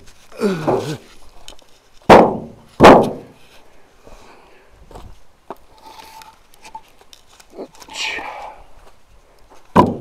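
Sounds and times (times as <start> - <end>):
firewood logs knocking on woodpile: 0.5 - 1.0, 2.0 - 3.4, 9.7 - 10.0.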